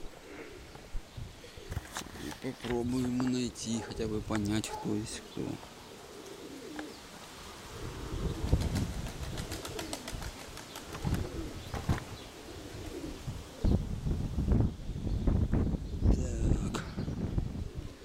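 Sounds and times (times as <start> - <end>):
wind rumbling on microphone: 0.0 - 3.2, 7.6 - 18.0
pigeons cooing: 0.0 - 13.9, 16.5 - 18.0.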